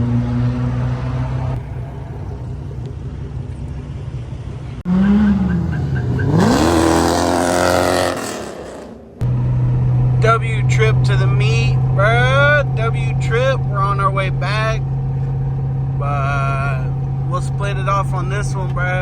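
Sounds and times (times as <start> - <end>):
car engine idling: 1.2 - 6.6, 9.0 - 19.0
engine revving: 4.8 - 14.6.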